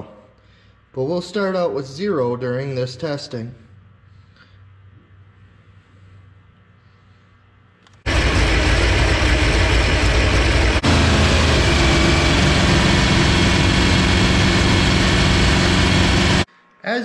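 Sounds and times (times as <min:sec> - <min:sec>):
car engine running: 0:08.1 - 0:16.5.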